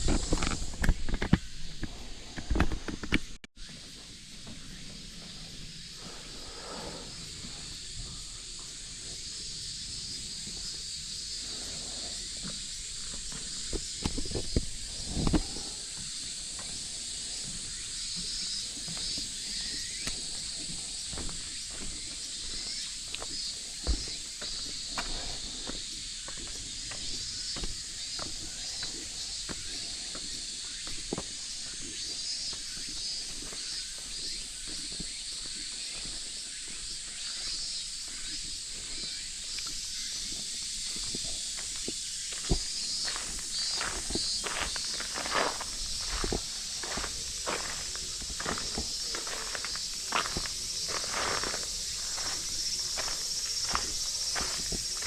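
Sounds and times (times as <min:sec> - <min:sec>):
cicadas chirring: 0:00.0 - 0:55.0
footsteps: 0:12.4 - 0:37.0, 0:38.0 - 0:55.0.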